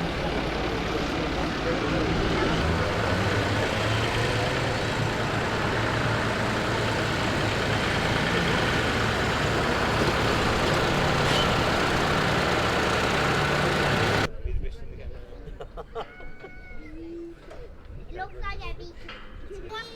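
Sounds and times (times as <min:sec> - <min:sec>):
vehicle engine running: 0:00.0 - 0:14.3.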